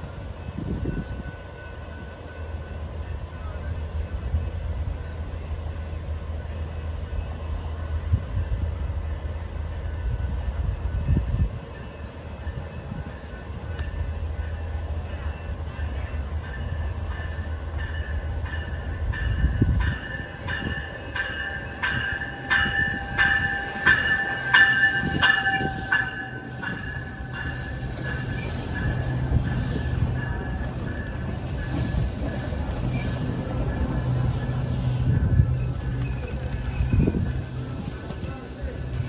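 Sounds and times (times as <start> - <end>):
train rumble: 0.0 - 39.0
railway bell striking: 16.4 - 39.0.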